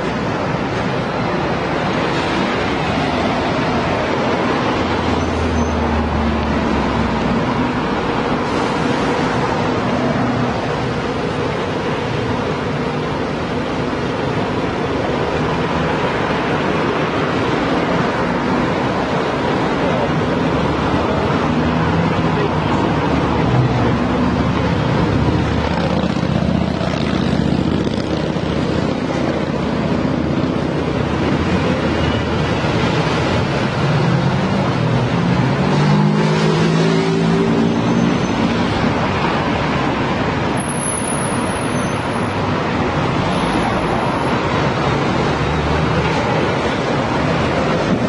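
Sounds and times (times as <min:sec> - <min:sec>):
vehicle engines: 0:00.0 - 0:48.0
tyres hissing on road: 0:00.4 - 0:25.0
engines accelerating: 0:15.4 - 0:40.5.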